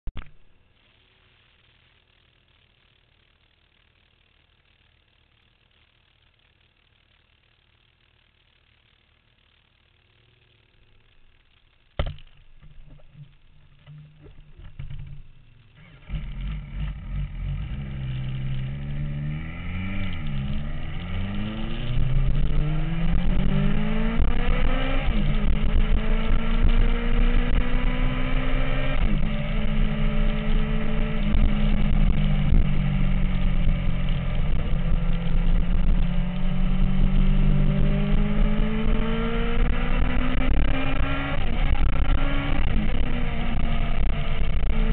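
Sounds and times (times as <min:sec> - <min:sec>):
motorcycle engine revving: 0:12.0 - 0:44.9.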